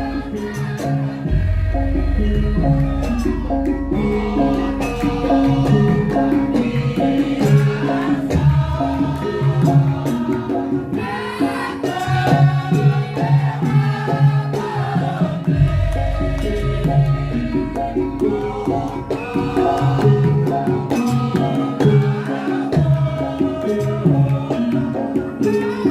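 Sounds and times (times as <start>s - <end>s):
person singing: 0.0s - 13.8s
drums: 0.0s - 25.9s
gamelan percussion: 0.0s - 25.9s.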